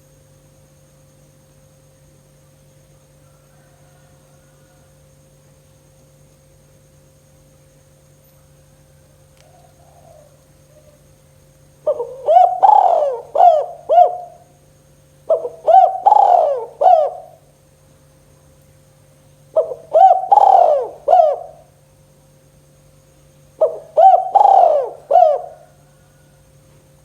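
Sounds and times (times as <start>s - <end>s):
faint mains hum: 0.0s - 27.0s
dove cooing: 9.4s - 11.1s, 11.8s - 14.5s, 15.3s - 17.5s, 19.5s - 21.7s, 23.6s - 26.3s.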